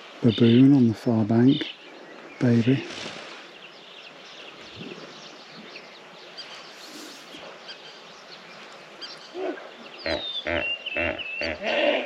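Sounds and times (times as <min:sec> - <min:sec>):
wind: 0:00.0 - 0:12.0
small birds chirping: 0:00.2 - 0:11.9
loud animal call: 0:09.3 - 0:12.0.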